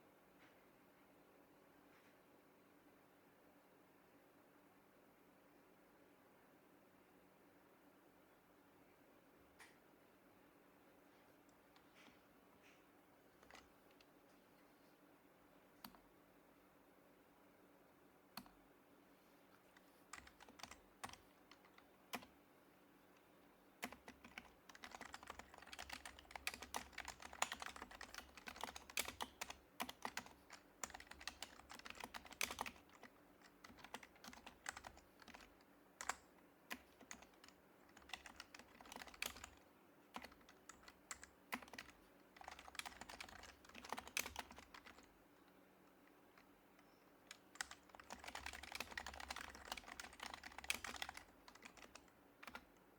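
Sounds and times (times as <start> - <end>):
keyboard typing: 11.5 - 14.1, 19.7 - 22.4, 23.8 - 45.1, 46.3 - 52.7.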